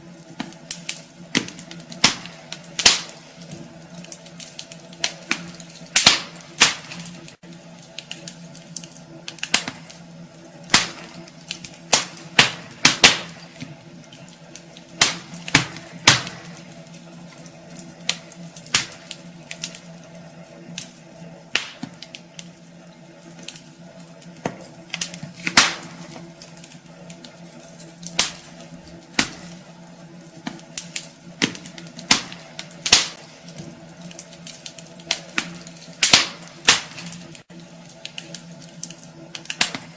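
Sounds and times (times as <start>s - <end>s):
faint steady hum: 0.0s - 39.9s
wood fire crackling and popping: 0.0s - 39.9s.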